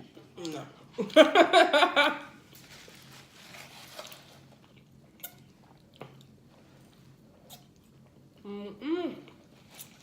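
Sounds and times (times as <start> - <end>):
low steady hum: 0.0 - 10.0
soft chewing: 2.5 - 8.5.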